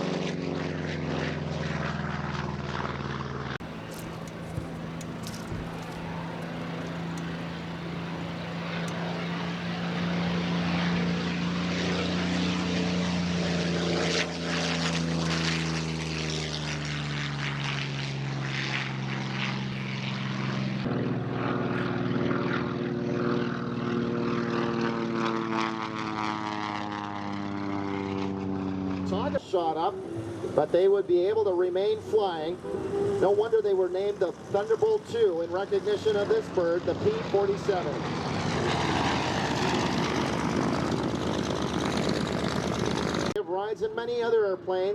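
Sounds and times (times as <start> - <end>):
propeller plane engine drone: 0.0 - 44.9.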